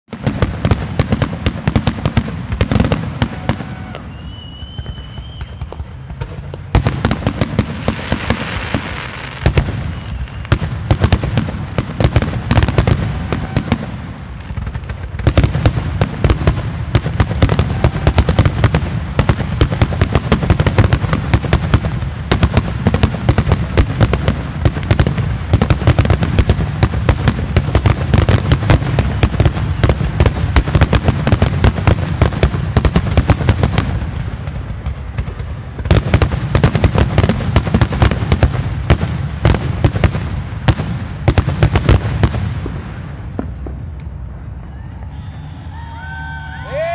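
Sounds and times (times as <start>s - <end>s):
fireworks bangs and crackling: 0.1s - 46.9s
firework whistle: 1.9s - 10.9s, 12.4s - 14.3s, 17.2s - 18.8s, 28.6s - 30.5s, 44.4s - 46.9s.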